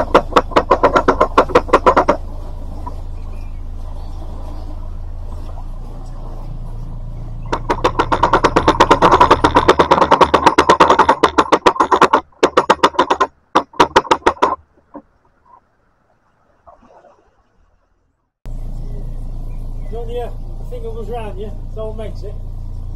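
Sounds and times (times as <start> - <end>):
ratchet clicking rapidly: 0.0 - 2.2, 7.5 - 14.6
boat diesel engine idling: 0.0 - 15.6, 18.5 - 22.9.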